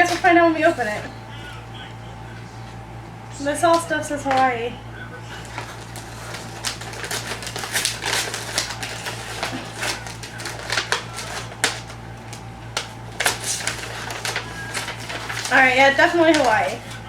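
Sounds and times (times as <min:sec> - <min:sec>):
low electrical hum: 0:00.0 - 0:17.0
wrappers crinkling and rustling: 0:05.2 - 0:17.0.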